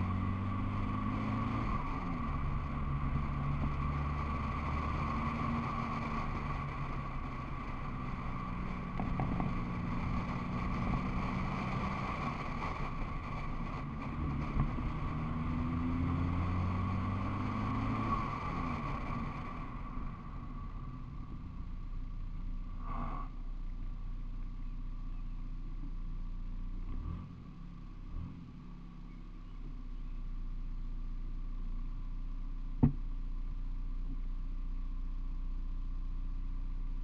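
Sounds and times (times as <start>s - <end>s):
car engine idling: 19.3s - 26.9s, 27.6s - 37.0s.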